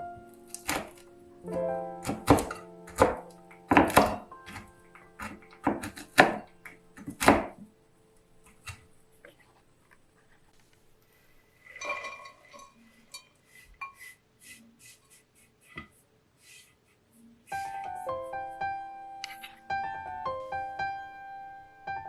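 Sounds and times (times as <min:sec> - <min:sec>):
chopping thuds on a board: 0:02.0 - 0:04.2
utensils and dishes clinking: 0:11.7 - 0:14.0.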